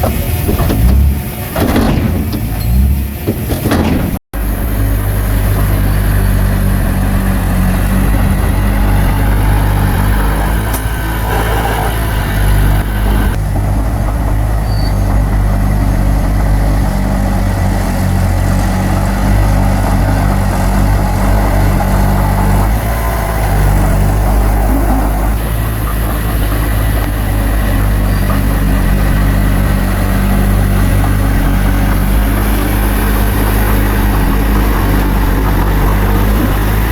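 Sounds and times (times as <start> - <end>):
bulldozer diesel engine running: 0.0 - 36.9.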